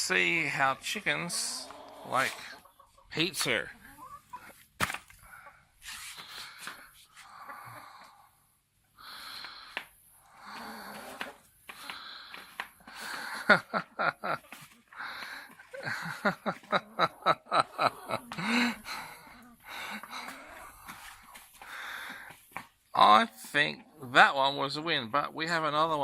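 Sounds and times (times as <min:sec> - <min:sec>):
person laughing: 0:12.9 - 0:20.6.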